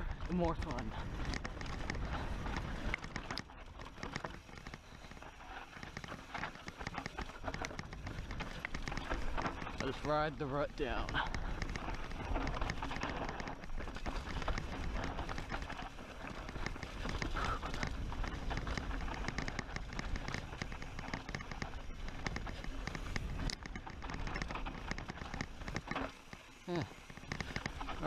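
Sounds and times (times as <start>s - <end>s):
wind rumble on microphone: 0.0s - 3.8s
bike rattling: 0.0s - 28.0s
bike tyres crunching over stones: 0.0s - 28.0s.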